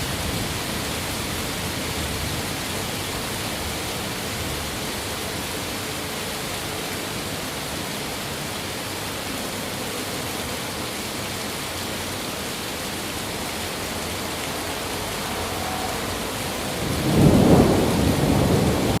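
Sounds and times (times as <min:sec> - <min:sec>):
rain falling: 0:00.0 - 0:19.0
thunder rumbling: 0:14.6 - 0:19.0.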